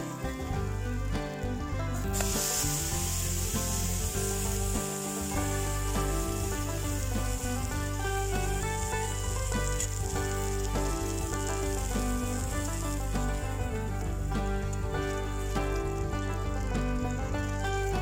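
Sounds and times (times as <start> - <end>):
background music: 0.0 - 18.0
batter sizzling in a pan: 2.0 - 18.0.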